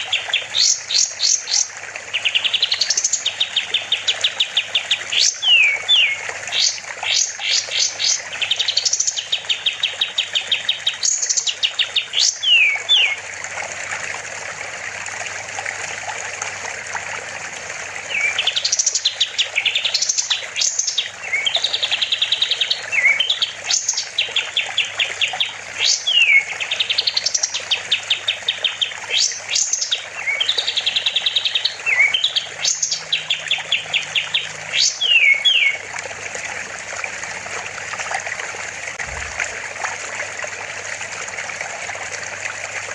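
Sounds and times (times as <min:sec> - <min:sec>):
songbird trilling and whistling: 0:05.1 - 0:09.3, 0:12.2 - 0:13.2, 0:25.8 - 0:27.6, 0:28.8 - 0:35.8
low hum: 0:39.0 - 0:39.8.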